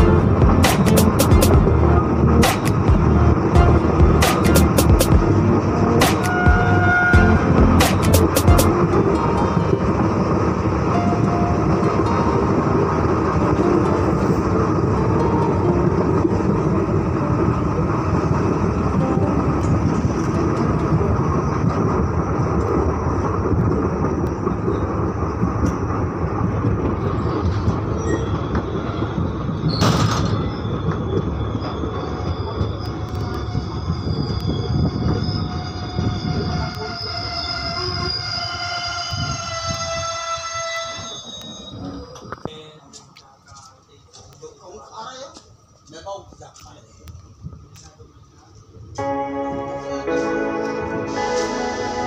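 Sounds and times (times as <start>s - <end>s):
sharp bang: 0.0s - 1.7s, 2.4s - 5.4s, 6.0s - 8.7s
train running on rails: 0.0s - 52.0s
train brakes squealing: 5.7s - 8.7s, 26.7s - 43.0s, 49.6s - 52.0s.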